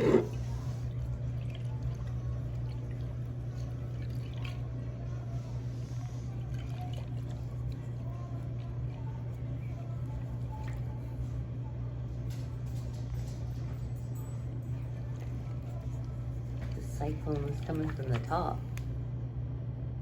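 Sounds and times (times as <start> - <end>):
water swirling in a jar: 0.0 - 11.3, 14.6 - 18.8
steady low hum: 0.0 - 20.0.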